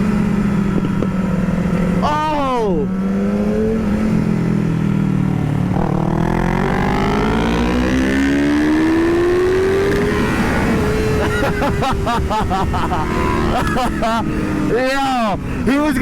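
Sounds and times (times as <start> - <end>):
motorcycle engine accelerating: 0.0 - 15.7
gear change: 5.6 - 14.9.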